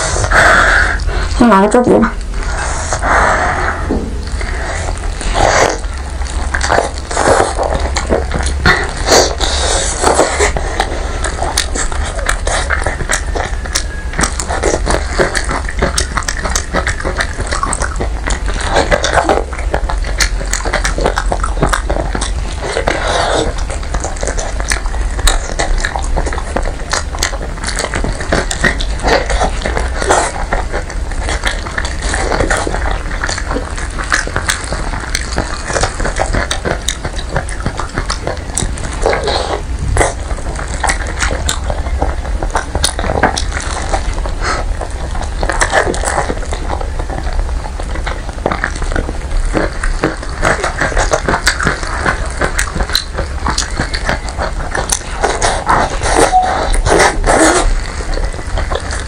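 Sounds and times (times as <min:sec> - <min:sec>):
person chewing and lip-smacking: 0:00.0 - 0:59.0
steady low hum: 0:00.0 - 0:59.0.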